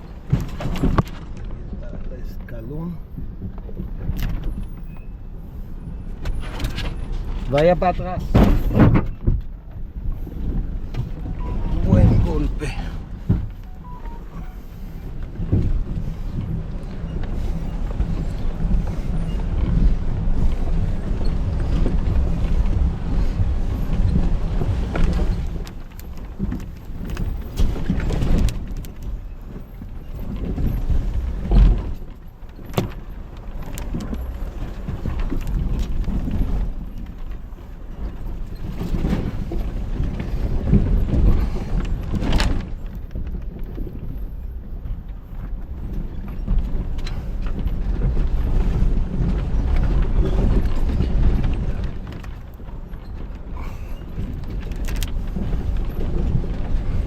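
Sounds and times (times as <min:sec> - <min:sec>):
engine rumbling low: 0:00.0 - 0:57.0
heavy thump: 0:08.2 - 0:09.4, 0:11.0 - 0:13.8.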